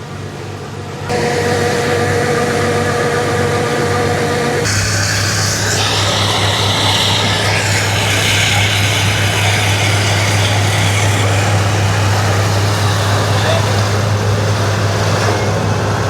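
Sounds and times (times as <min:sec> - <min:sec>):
engine running with hiss: 0:00.0 - 0:16.0.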